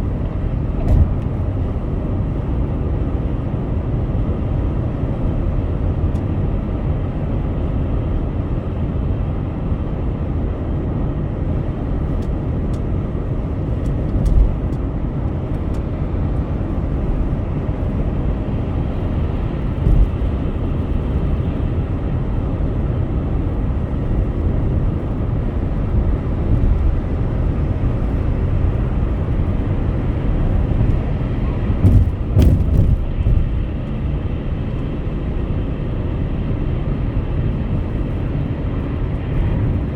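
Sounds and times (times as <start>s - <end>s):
tyre and road rumble: 0.0s - 1.9s, 13.6s - 21.7s, 24.3s - 39.9s.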